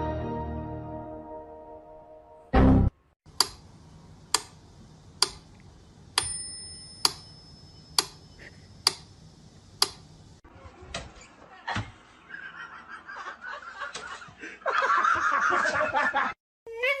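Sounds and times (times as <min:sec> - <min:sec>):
ringing bell-like tone: 0:06.2 - 0:08.4.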